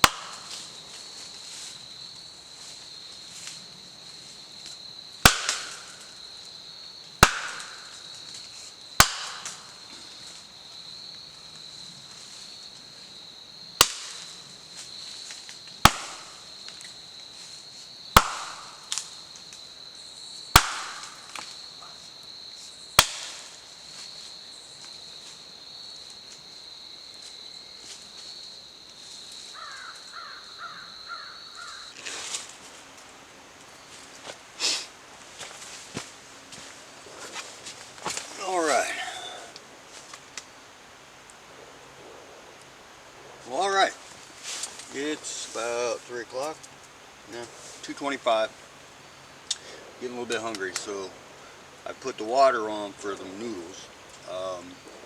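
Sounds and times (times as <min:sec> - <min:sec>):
sharp cracks or knocks: 0:00.0 - 0:00.7, 0:05.2 - 0:06.1, 0:07.2 - 0:08.0, 0:09.0 - 0:09.8, 0:13.8 - 0:14.3, 0:15.8 - 0:16.4, 0:18.2 - 0:19.2, 0:20.5 - 0:21.6, 0:23.0 - 0:23.6.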